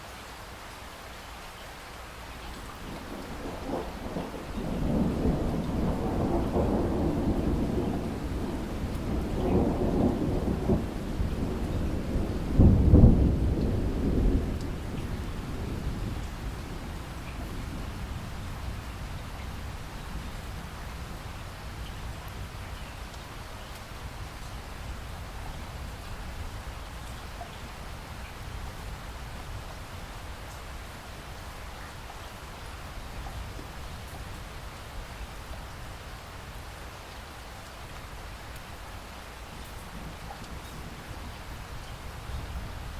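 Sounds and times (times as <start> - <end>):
steady rain: 0.0 - 42.9
thunder rumbling: 2.8 - 22.6.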